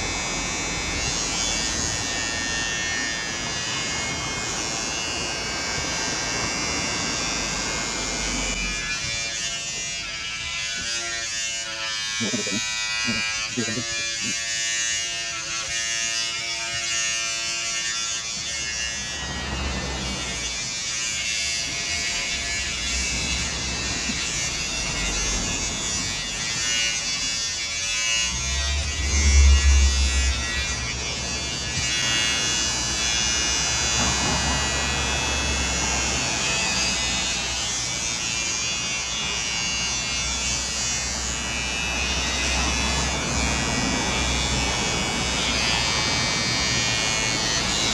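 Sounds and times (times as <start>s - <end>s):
electric hair clippers buzzing: 0.0s - 47.9s
deeper rumble: 21.3s - 38.2s.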